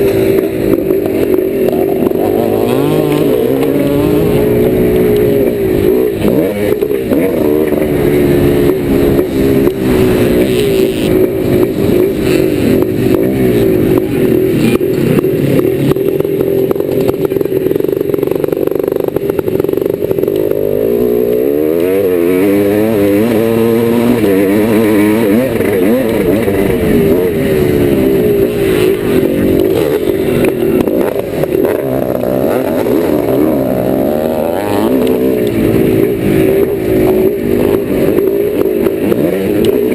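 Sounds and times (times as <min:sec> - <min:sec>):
motorcycle knocks and clatter: 0:00.0 - 0:20.7
two-stroke motorcycle engine revving: 0:00.0 - 0:39.9.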